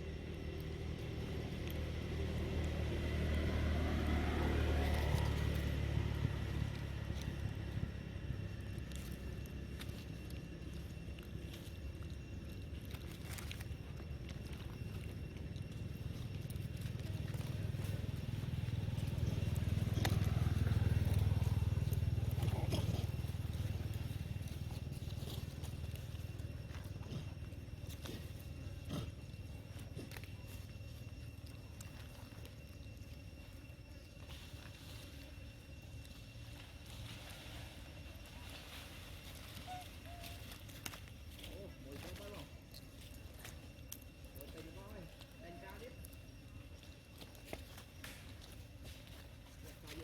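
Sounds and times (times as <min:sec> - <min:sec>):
low engine rumble: 0:00.0 - 0:50.0
faint clicks and crackles: 0:00.4 - 0:50.0
vehicle engine passing: 0:00.6 - 0:09.0, 0:16.2 - 0:26.4.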